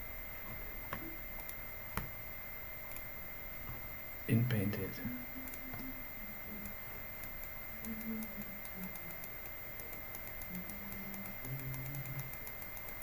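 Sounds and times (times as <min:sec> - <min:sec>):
low room hum: 0:00.0 - 0:13.0
faint ticking clicks: 0:00.8 - 0:02.2, 0:06.6 - 0:13.0.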